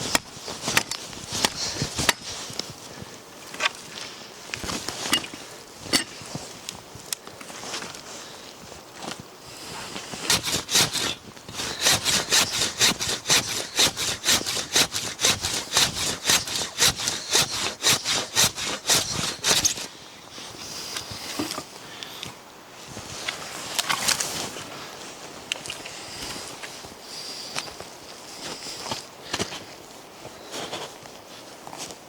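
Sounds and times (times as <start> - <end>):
hand saw cutting wood: 10.2 - 19.9.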